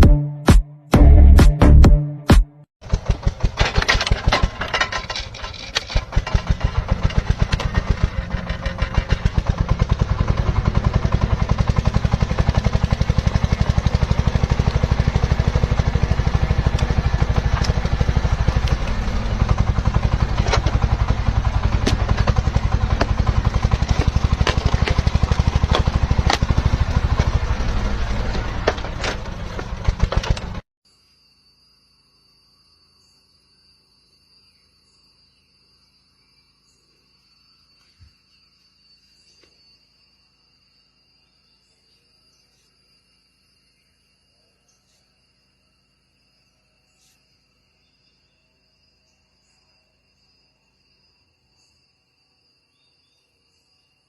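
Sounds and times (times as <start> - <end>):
engine running: 0.0 - 30.7.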